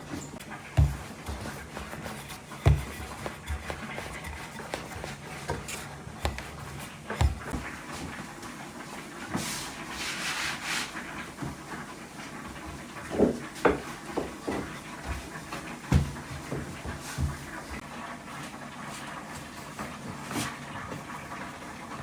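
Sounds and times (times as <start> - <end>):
rubbing and scraping: 0.2 - 7.6, 9.4 - 11.0.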